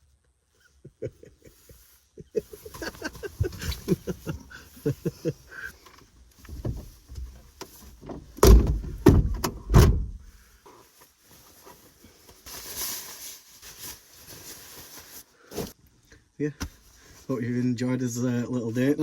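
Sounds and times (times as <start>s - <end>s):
heavy thumps and knocks: 8.0s - 10.3s.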